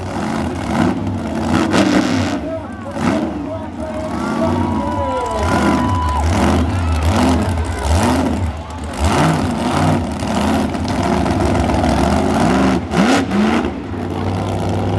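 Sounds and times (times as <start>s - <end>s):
monster truck engine revving: 0.0s - 14.9s.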